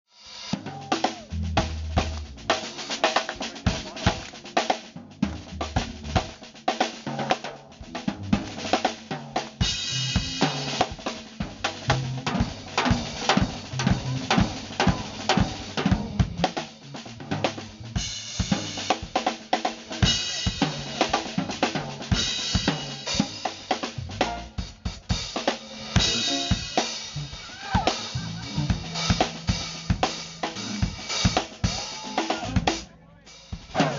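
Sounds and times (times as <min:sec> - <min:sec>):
drum kit beat: 0:00.1 - 0:33.9
walking bass line: 0:00.6 - 0:19.2, 0:20.0 - 0:25.1, 0:26.0 - 0:33.9
keyboards: 0:00.6 - 0:33.9.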